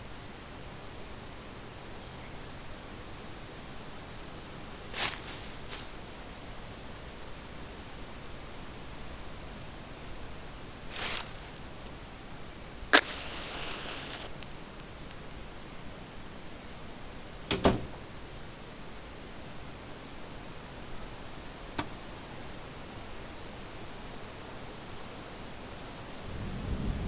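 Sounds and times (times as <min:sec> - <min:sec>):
steady rain hiss: 0:02.2 - 0:08.8, 0:10.8 - 0:17.1, 0:19.5 - 0:27.0
wood fire crackling: 0:10.9 - 0:11.9, 0:12.9 - 0:15.9.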